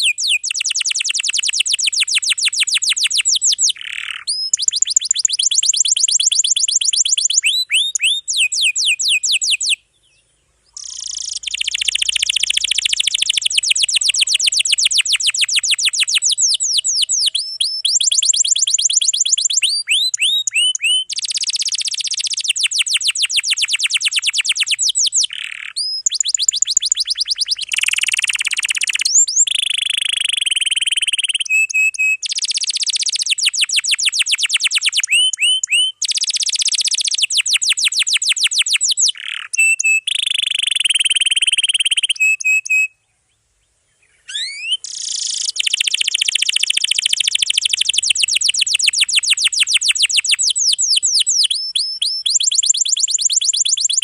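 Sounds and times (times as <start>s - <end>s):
canary singing trills: 0.0s - 43.0s, 44.0s - 54.0s.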